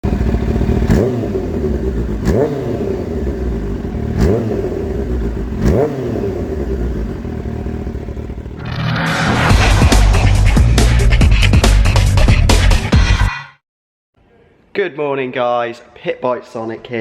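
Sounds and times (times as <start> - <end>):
motorcycle engine idling and revving: 0.0 - 10.8.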